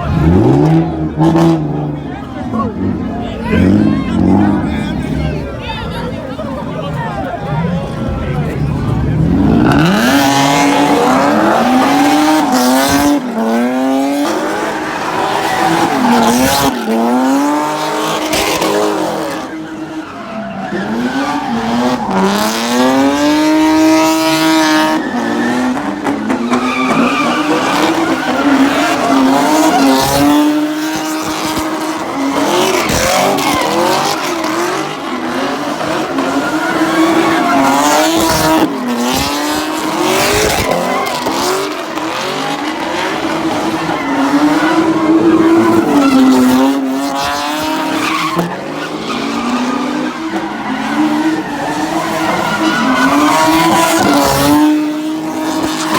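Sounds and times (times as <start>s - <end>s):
car engine revving hard: 0.0s - 5.6s, 6.4s - 55.9s
tyres squealing and skidding: 0.0s - 55.9s.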